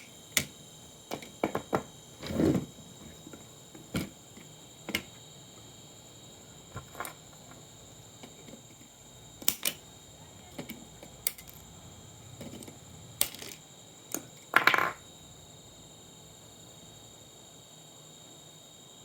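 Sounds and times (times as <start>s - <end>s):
small hard parts clicking and tapping: 0.0s - 1.9s, 6.7s - 9.9s, 10.5s - 11.7s, 12.4s - 15.0s
parts rattling: 12.4s - 13.6s.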